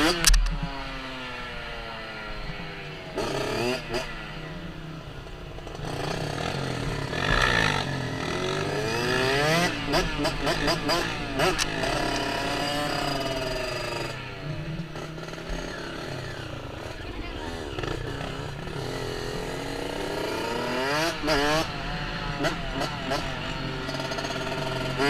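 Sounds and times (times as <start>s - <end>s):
small vehicle engine revving: 0.0s - 25.0s.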